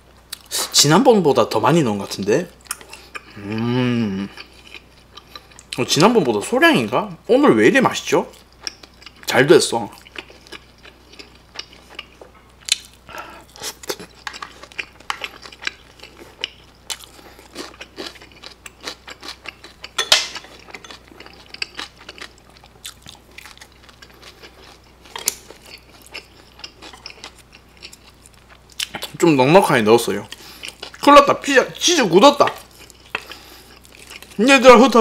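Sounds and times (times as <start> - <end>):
person chewing wetly: 2.6 - 5.8, 8.3 - 29.2, 30.2 - 31.1, 32.4 - 34.4.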